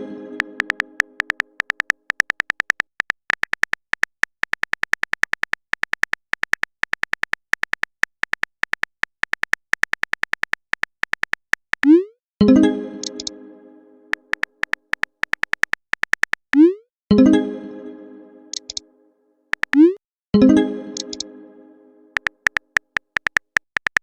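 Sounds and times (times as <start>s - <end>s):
plucked notification chime: 0.0s - 1.1s, 12.4s - 14.0s, 16.6s - 18.8s, 19.8s - 21.9s
phone keyboard typing clicks: 0.4s - 12.0s, 13.0s - 13.3s, 14.1s - 16.7s, 18.5s - 18.8s, 19.5s - 20.0s, 21.0s - 21.3s, 22.2s - 24.0s.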